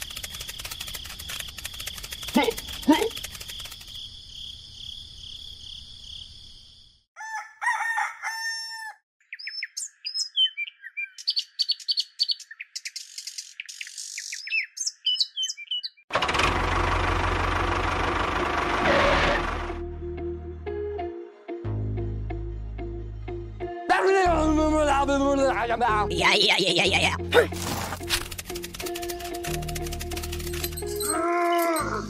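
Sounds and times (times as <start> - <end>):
pulsing insect trill: 0.0 - 6.6
rooster crowing: 7.2 - 9.0
birds chirping: 9.2 - 16.1.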